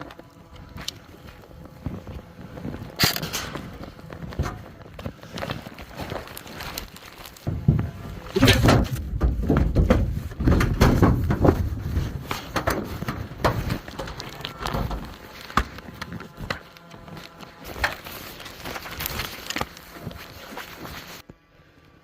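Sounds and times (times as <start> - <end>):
low rumbling handling noise: 1.5 - 21.2
sharp clicks and knocks: 7.4 - 18.0.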